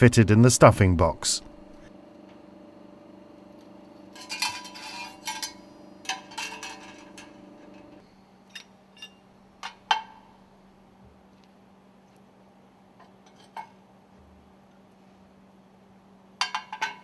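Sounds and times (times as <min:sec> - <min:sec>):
faint steady hum: 0:00.0 - 0:17.0
metal rings clinking: 0:04.1 - 0:09.2.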